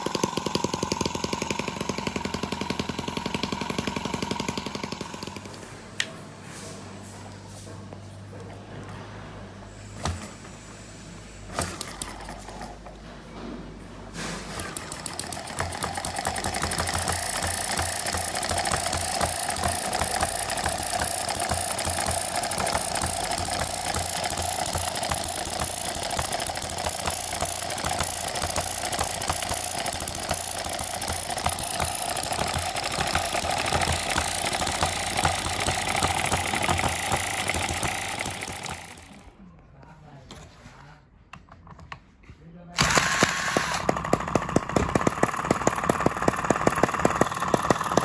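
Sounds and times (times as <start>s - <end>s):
small model engine clattering: 0.0s - 5.7s, 11.5s - 13.0s, 14.5s - 39.3s, 42.8s - 48.0s.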